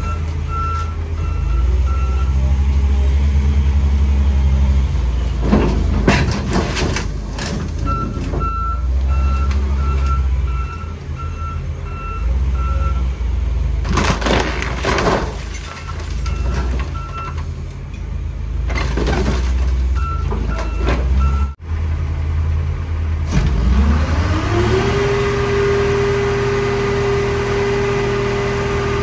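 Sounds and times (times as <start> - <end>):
loader engine running: 0.0 - 29.0
scrap metal clanking and crunching: 5.2 - 10.9, 13.8 - 21.6.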